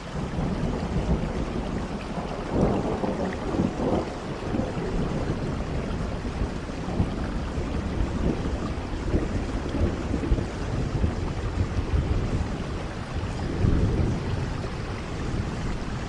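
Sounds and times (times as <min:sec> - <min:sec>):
steady rain: 0:00.0 - 0:16.0
low rolling rumble: 0:00.6 - 0:16.0.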